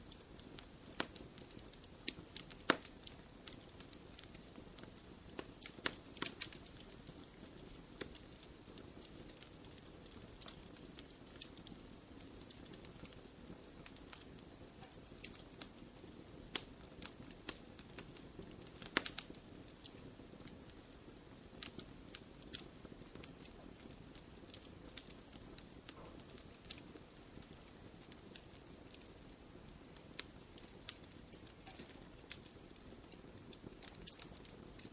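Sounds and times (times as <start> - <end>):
hiss of flames: 0.0 - 34.9
wood fire crackling and popping: 0.0 - 34.9.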